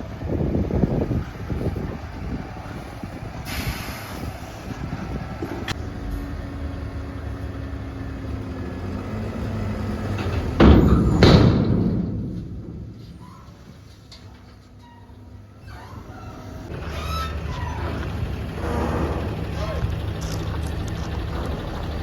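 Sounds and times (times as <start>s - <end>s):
diesel truck engine running: 0.0s - 22.0s
short air hiss: 3.5s - 4.3s.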